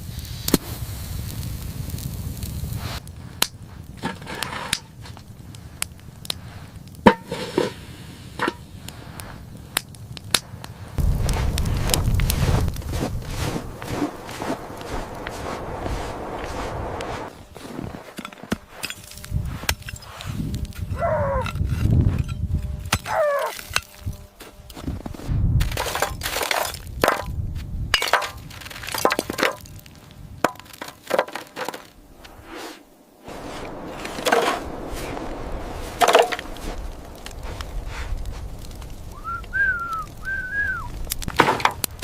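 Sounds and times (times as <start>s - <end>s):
sharp cracks snaps and clinks: 41.0s - 42.0s.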